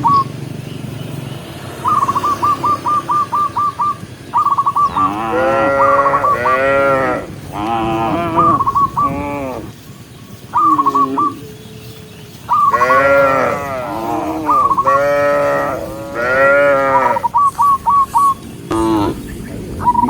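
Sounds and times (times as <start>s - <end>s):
cattle mooing: 4.9s - 9.7s, 12.7s - 17.3s, 18.7s - 19.3s.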